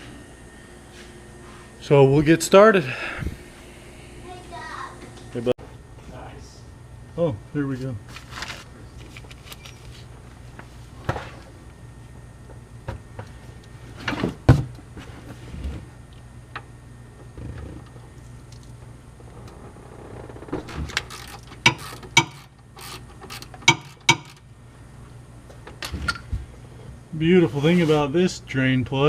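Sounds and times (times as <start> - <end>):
low steady hum: 0.0 - 29.0
metal tools clicking and knocking: 23.2 - 24.4.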